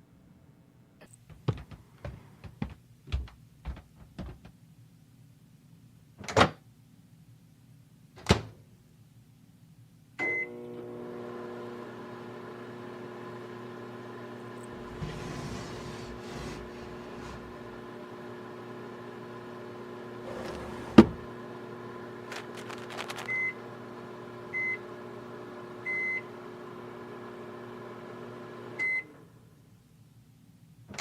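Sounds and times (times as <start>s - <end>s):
microwave beep: 10.2s - 10.6s, 23.2s - 23.6s, 24.5s - 24.9s, 25.8s - 26.3s, 28.8s - 29.2s
microwave oven humming: 10.2s - 29.6s.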